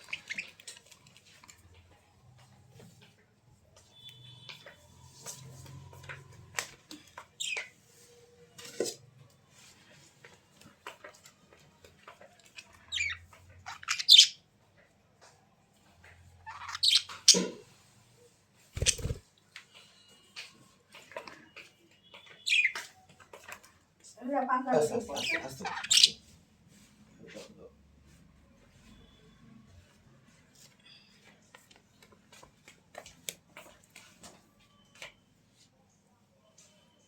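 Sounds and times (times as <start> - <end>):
bird squawking and chirping: 12.9 - 14.4, 16.4 - 17.4, 25.1 - 26.2.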